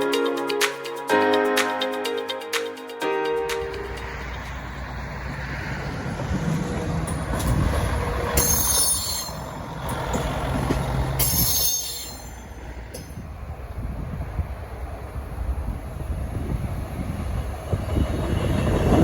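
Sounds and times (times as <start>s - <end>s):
train rumbling on rails: 3.4s - 19.0s
steel wheel squeal: 7.1s - 10.3s, 11.0s - 13.1s.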